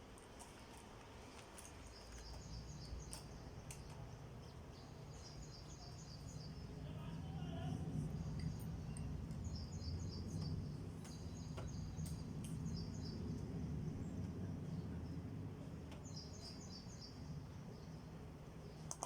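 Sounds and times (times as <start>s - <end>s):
low background hum: 0.0s - 19.0s
small bird chirping: 1.8s - 7.1s, 7.7s - 14.8s, 16.0s - 18.0s.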